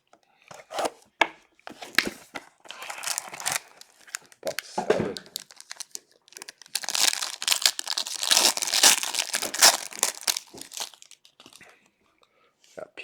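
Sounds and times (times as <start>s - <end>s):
plastic wrapping torn and crinkled: 2.7s - 11.7s.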